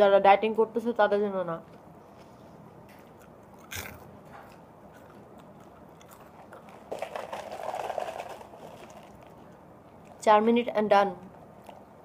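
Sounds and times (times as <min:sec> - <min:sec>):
chewing: 0:03.0 - 0:10.2, 0:11.6 - 0:11.9
popcorn crunching: 0:03.0 - 0:10.3, 0:11.2 - 0:12.0.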